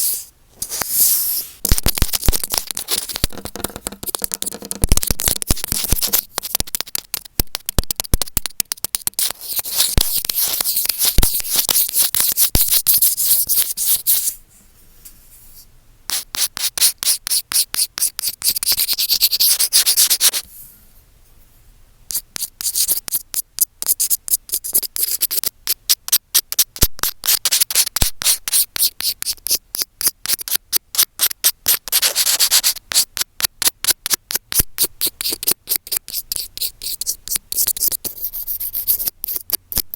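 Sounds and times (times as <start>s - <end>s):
microphone scratching: 0.0s - 6.8s.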